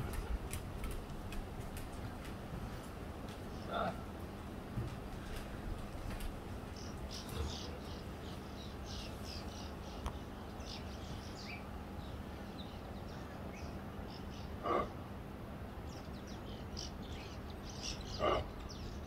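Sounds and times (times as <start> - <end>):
small birds chirping: 0.0 - 4.2, 5.2 - 15.0, 15.8 - 19.0
low outdoor background noise: 0.0 - 19.0
short loud animal calls: 14.6 - 15.0.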